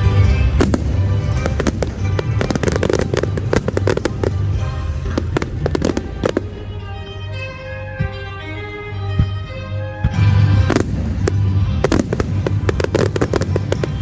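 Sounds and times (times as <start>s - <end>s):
fireworks bangs and crackles: 0.0s - 7.4s, 10.0s - 14.0s
background music with bass: 0.0s - 14.0s.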